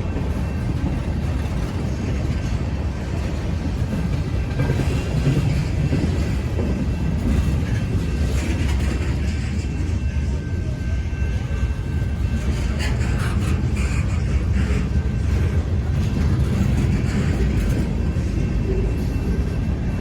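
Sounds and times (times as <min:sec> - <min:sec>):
steel wheels rumbling on rails: 0:00.0 - 0:20.0
faint clickety-clack: 0:00.1 - 0:20.0.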